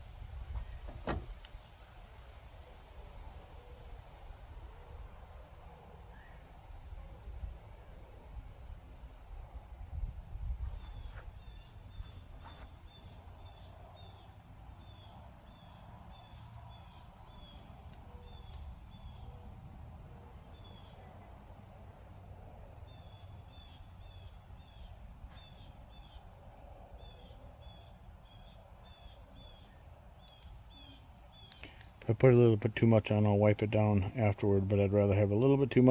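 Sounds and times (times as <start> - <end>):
low outdoor rumble: 0.0 - 35.9
small bird chirping: 10.7 - 19.5, 27.0 - 31.8
faint clicks: 30.2 - 32.1.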